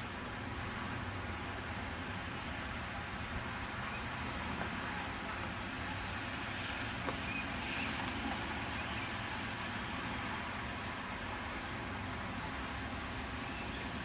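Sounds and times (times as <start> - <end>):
distant road traffic rumble: 0.0 - 14.0.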